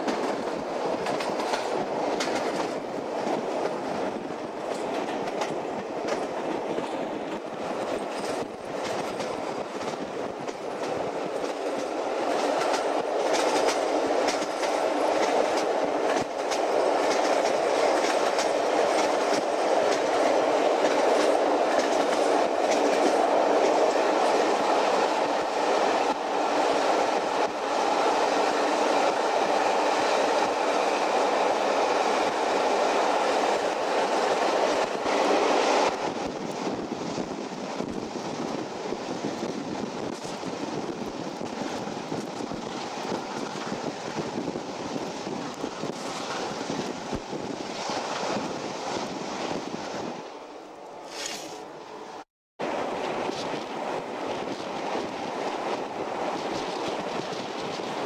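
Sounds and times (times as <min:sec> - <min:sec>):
wheels clicking over rail joints: 0:00.0 - 0:24.4
train rolling rumble: 0:00.0 - 0:58.0.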